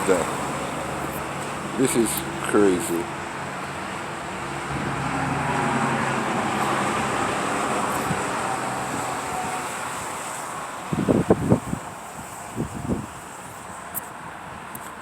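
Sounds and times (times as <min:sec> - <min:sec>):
car driving past: 0:00.0 - 0:11.0.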